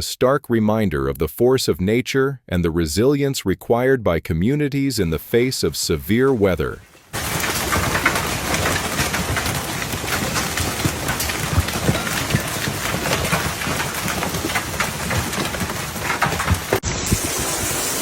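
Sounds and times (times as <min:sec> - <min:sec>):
rain rushing: 0:06.1 - 0:18.0
hailstones striking hard surfaces: 0:07.1 - 0:18.0.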